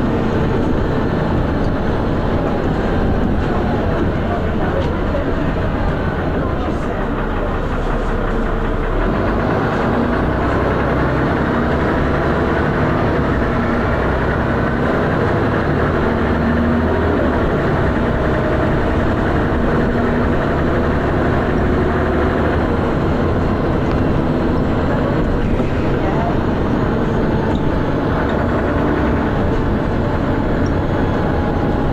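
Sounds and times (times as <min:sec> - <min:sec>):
bus diesel engine running: 0:00.0 - 0:31.9.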